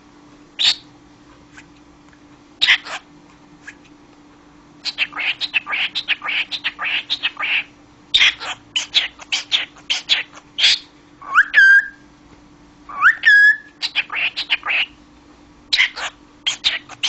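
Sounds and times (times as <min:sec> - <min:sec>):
cockatiel chattering: 0:00.6 - 0:00.8, 0:02.6 - 0:03.8, 0:04.8 - 0:12.0, 0:12.9 - 0:15.0, 0:15.7 - 0:17.0.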